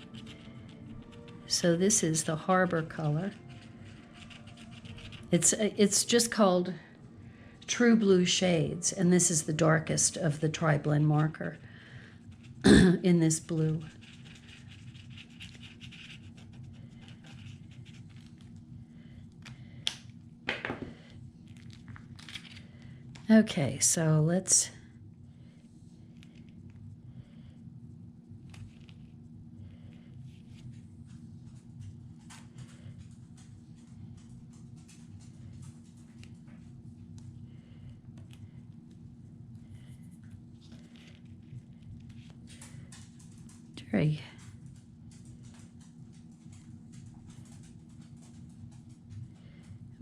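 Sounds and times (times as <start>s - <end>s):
felt-tip marker scratching on wood: 0.0s - 5.6s, 13.4s - 18.3s
steady low hum: 0.0s - 50.0s.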